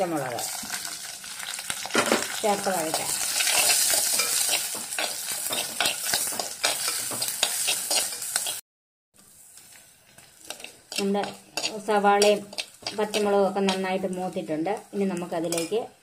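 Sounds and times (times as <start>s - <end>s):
food sizzling in hot oil: 0.0s - 8.6s, 9.2s - 16.0s
spoon scraping and tapping pot: 2.9s - 8.6s, 10.5s - 13.9s.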